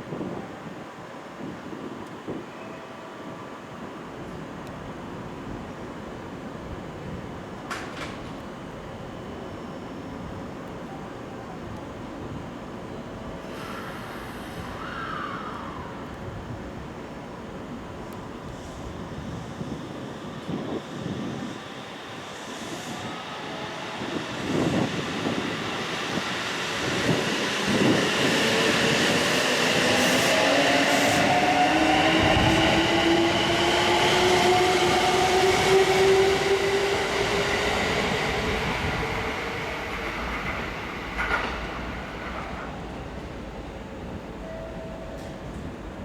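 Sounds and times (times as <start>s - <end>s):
electric train accelerating: 17.4s - 46.0s.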